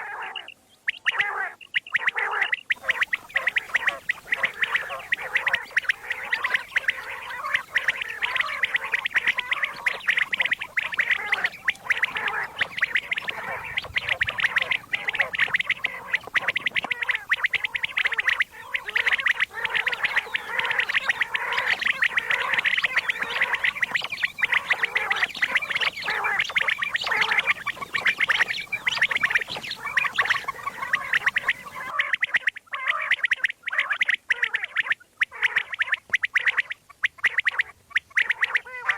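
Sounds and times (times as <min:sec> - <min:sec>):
quail calling rapid chatter: 0:00.0 - 0:38.9.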